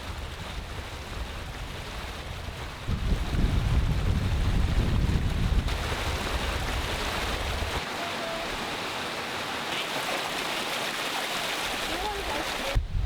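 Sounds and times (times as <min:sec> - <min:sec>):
wind buffeting microphone: 0:00.0 - 0:07.8, 0:12.0 - 0:13.0
wind and rain rushing: 0:00.0 - 0:13.0.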